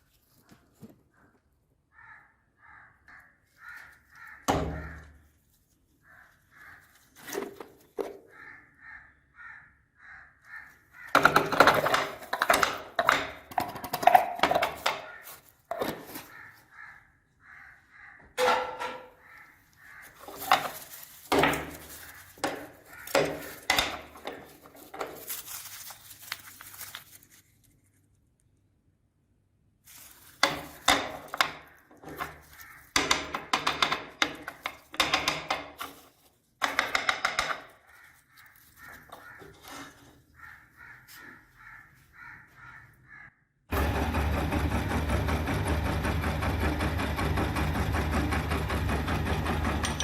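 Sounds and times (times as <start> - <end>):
meat grinder crushing hard candy: 11.2 - 15.1, 43.7 - 50.0.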